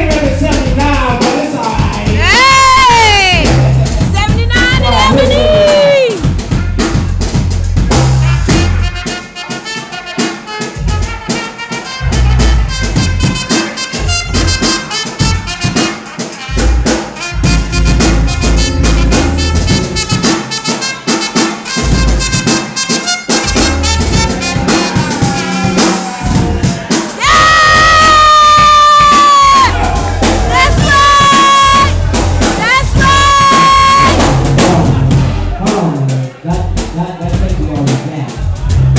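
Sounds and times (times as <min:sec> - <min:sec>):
drum kit beat: 0:00.0 - 0:38.9
live band playing: 0:00.0 - 0:38.9
brass horn melody: 0:06.4 - 0:07.3, 0:07.9 - 0:36.0.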